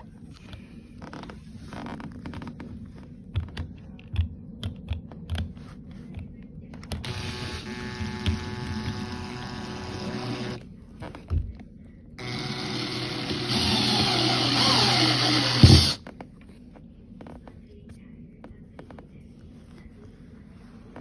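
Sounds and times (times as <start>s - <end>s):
power drill motor running: 7.0s - 10.6s, 12.2s - 16.0s.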